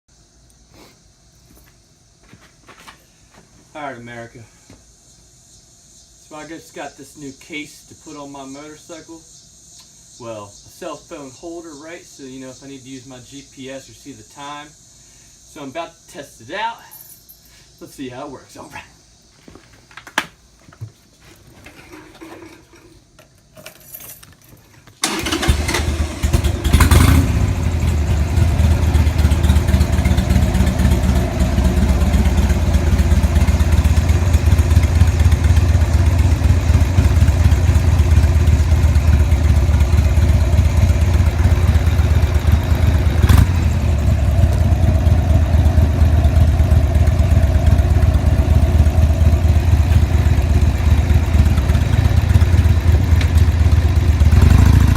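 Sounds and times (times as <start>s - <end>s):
motorcycle engine idling: 25.1s - 54.9s.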